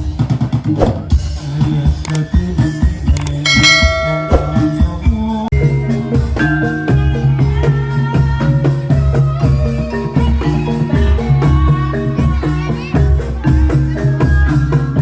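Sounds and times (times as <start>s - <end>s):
low drum beats: 0.0s - 15.0s
struck metallophone notes: 2.1s - 15.0s
sustained low tones: 3.5s - 7.8s.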